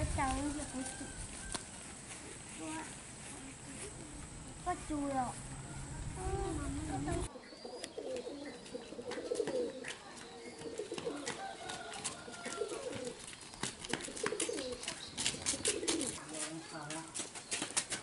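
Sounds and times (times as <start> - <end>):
birds cooing: 3.5 - 16.8.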